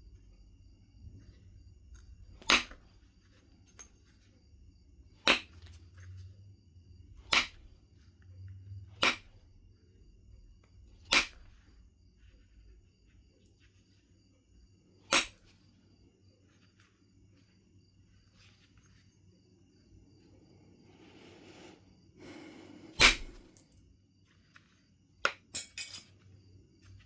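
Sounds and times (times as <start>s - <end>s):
flint knapping cracks: 2.4s - 2.8s, 5.2s - 5.7s, 7.2s - 7.7s, 11.1s - 11.5s, 23.0s - 23.6s.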